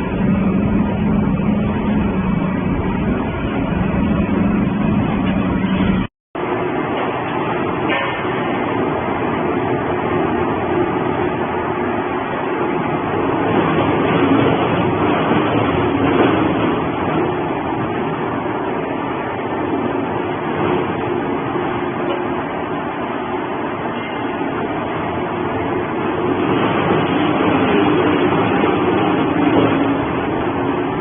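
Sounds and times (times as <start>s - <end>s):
pulverizer running: 0.0s - 7.8s.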